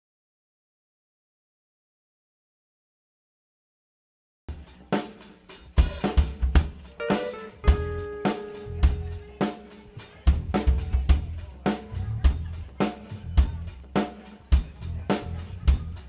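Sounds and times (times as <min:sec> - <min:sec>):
drum kit: 0:04.5 - 0:16.0
held keyboard chord: 0:06.9 - 0:09.5.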